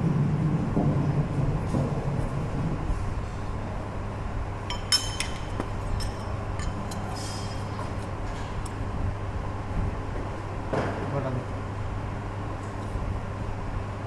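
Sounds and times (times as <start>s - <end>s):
steady low hum: 0.0s - 14.0s
metallic clinks with ringing: 4.7s - 7.8s.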